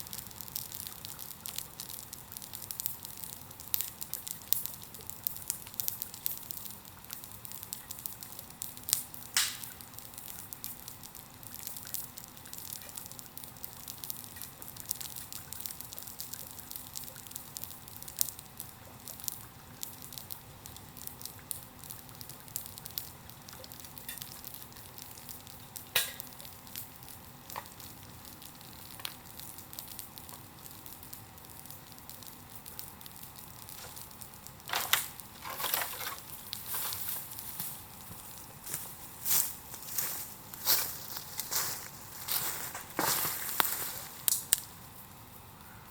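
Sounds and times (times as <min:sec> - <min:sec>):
sharp pops from fire: 0:00.0 - 0:45.8
bonfire crackling and hissing: 0:00.0 - 0:45.9.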